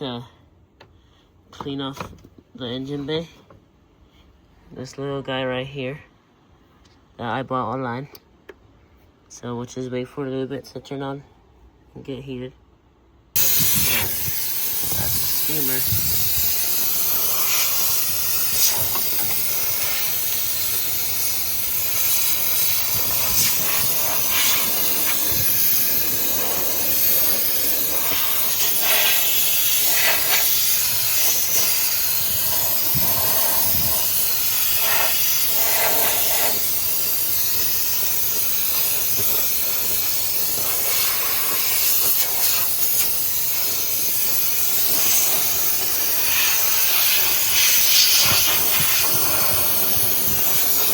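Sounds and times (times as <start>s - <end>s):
steam cleaner hissing: 13.4s - 50.9s.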